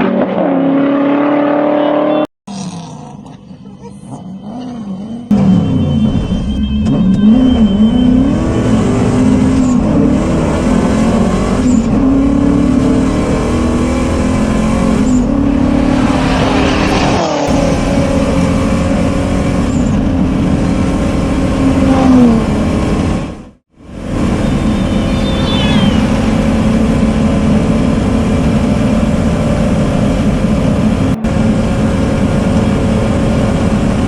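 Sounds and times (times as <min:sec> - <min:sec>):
engine revving hard: 0:07.2 - 0:19.9.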